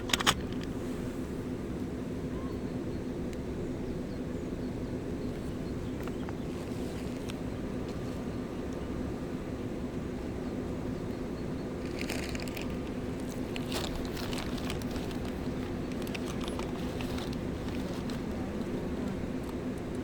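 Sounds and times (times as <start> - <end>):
crunching and crackling: 11.7 - 20.0.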